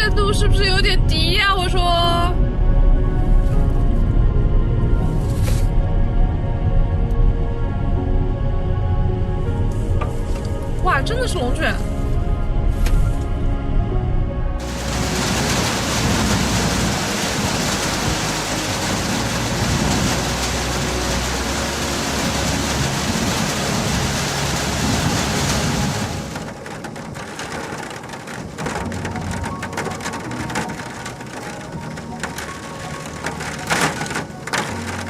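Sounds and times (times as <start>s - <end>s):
crackling patter: 14.6s - 35.0s
heavy storm rush: 14.6s - 35.0s.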